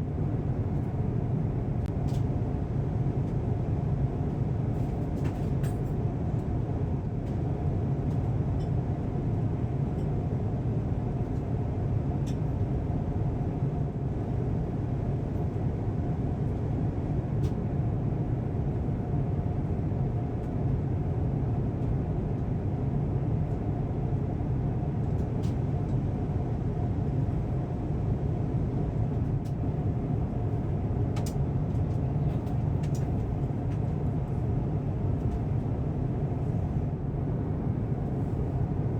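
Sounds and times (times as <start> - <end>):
airliner cabin rumble: 25.1 - 38.9.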